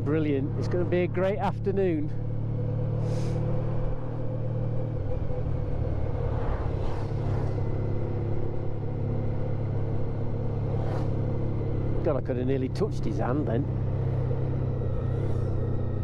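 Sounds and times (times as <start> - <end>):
motorcycle engine running steadily: 0.0 - 6.2, 7.6 - 16.0
brief whooshing: 5.6 - 8.5, 10.7 - 11.4.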